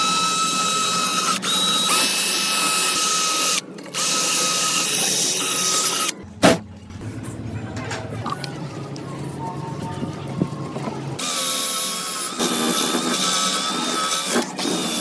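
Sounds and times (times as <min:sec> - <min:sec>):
power tool motor whining: 0:00.0 - 0:06.2, 0:11.2 - 0:15.0.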